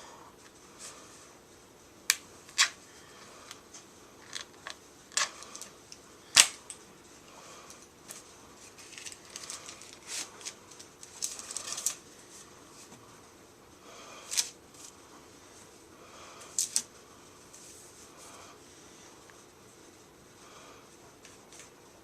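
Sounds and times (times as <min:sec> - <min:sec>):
paper crinkling: 0:08.6 - 0:12.0.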